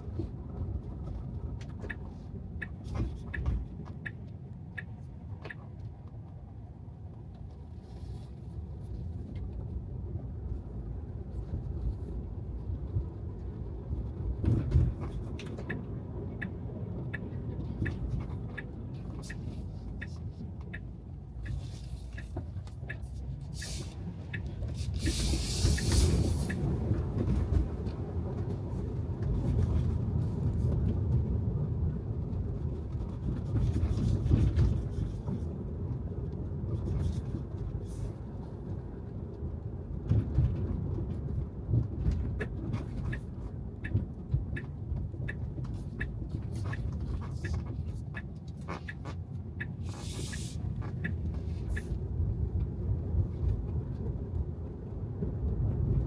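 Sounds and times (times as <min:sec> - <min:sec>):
low road rumble: 0:00.0 - 0:56.0
tyres hissing on wet road: 0:23.5 - 0:24.0, 0:24.7 - 0:26.8, 0:49.8 - 0:50.7.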